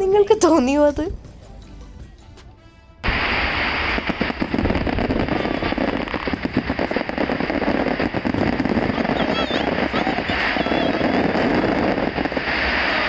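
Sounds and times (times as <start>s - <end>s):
fireworks crackling and banging: 3.0s - 13.0s.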